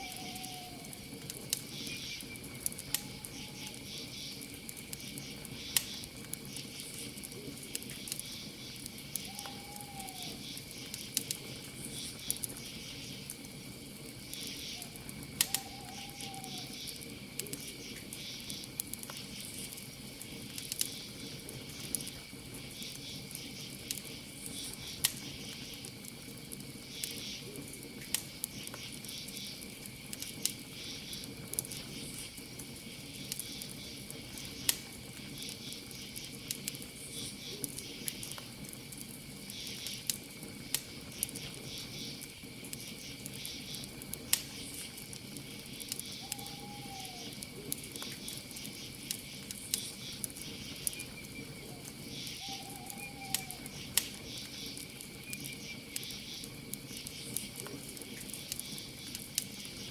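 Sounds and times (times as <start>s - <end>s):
owl hooting: 0.0s - 1.0s, 3.0s - 3.8s, 9.2s - 10.5s, 14.5s - 16.9s, 46.1s - 47.4s, 51.6s - 53.9s
campfire crackling and popping: 0.0s - 59.9s
crickets chirping: 0.0s - 59.9s.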